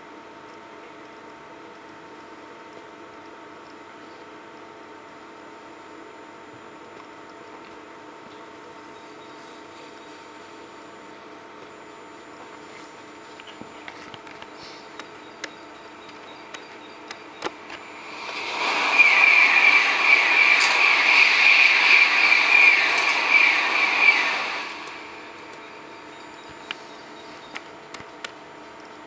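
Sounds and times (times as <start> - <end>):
bullet train rushing past over speaker: 16.8 - 26.4
short falling whistles: 17.8 - 26.0.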